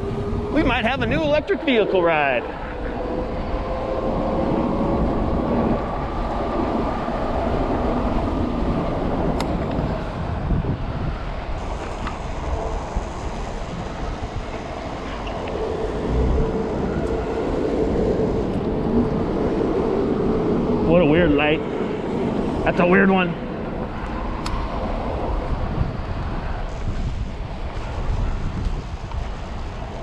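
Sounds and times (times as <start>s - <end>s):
wind and road noise: 0.0s - 30.0s.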